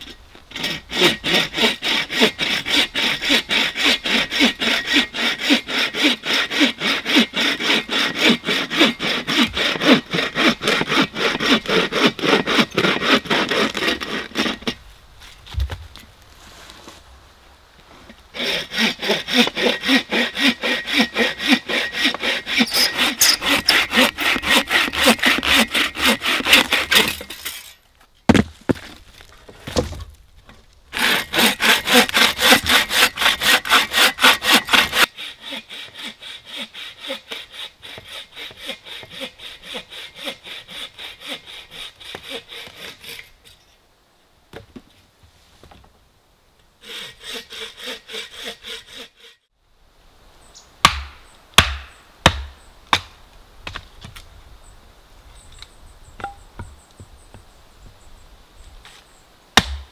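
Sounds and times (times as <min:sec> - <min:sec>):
bow saw cutting log: 0:00.5 - 0:14.8, 0:18.4 - 0:27.8, 0:31.0 - 0:43.4, 0:46.8 - 0:49.4.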